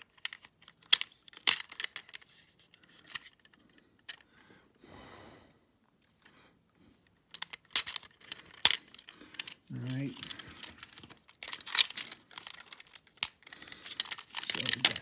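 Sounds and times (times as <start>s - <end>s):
plastic toy pieces clicking: 0.0s - 3.5s, 7.3s - 15.0s.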